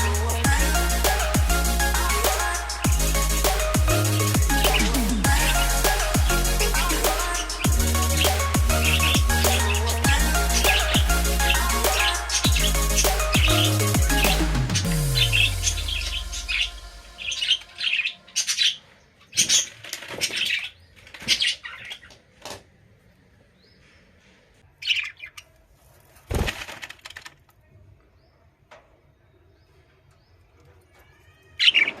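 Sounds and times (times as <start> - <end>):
background music: 0.0 - 18.1
bird chirps: 0.0 - 22.2.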